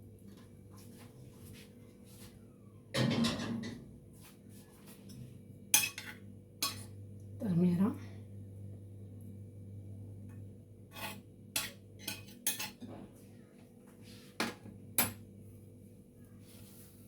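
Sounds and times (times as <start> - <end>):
utensils clinking against dishes: 5.8 - 6.9, 10.9 - 12.9.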